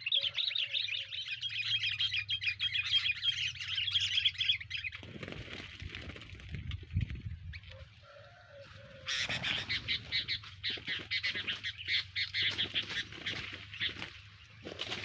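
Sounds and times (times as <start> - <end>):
bird chirping rapidly: 0.0 - 5.2, 9.0 - 14.7.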